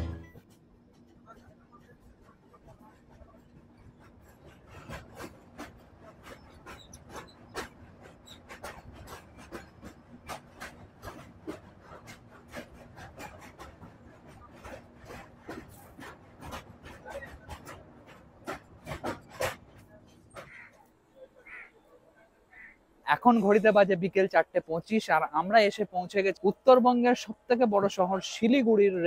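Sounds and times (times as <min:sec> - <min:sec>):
train rumbling on a bridge: 0:00.0 - 0:29.0
wheels clicking on track: 0:00.4 - 0:21.2.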